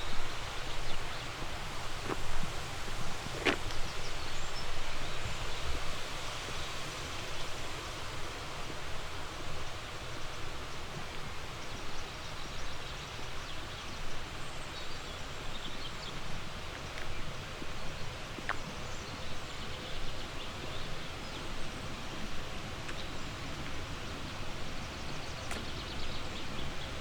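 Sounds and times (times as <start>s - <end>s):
mountain stream rushing: 0.0s - 27.0s.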